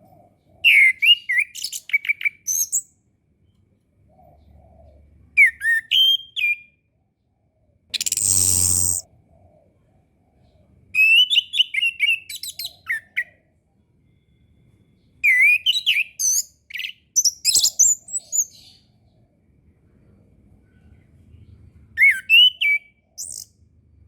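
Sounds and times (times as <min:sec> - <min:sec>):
bird singing whistled phrases: 0:00.6 - 0:02.9, 0:05.4 - 0:06.8, 0:08.0 - 0:09.1, 0:11.0 - 0:13.4, 0:15.2 - 0:18.8, 0:22.0 - 0:23.5.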